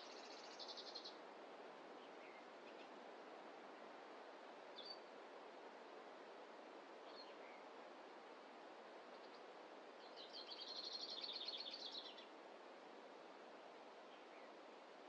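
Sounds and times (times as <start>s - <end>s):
songbird chirping and trilling: 0.0s - 1.2s, 10.0s - 12.3s
faint forest ambience hiss: 0.0s - 15.0s.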